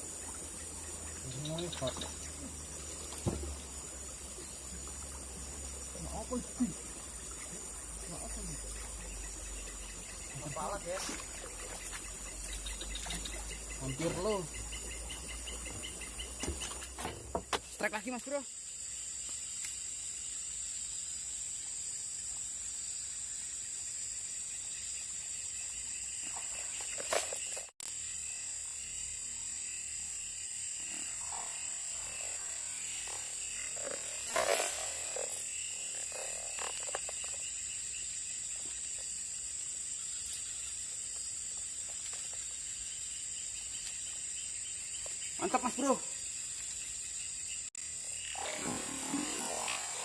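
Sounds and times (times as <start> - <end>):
frogs calling: 0.0 - 21.9, 22.8 - 50.0
insects chirping: 0.0 - 50.0.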